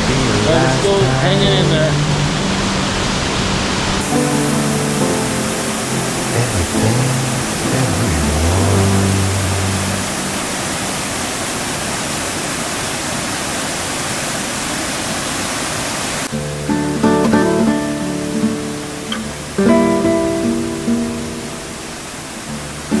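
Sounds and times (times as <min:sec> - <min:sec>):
waterfall rushing: 0:00.0 - 0:23.0
plucked acoustic guitar music: 0:04.0 - 0:10.4, 0:16.3 - 0:21.9
song: 0:04.0 - 0:11.1.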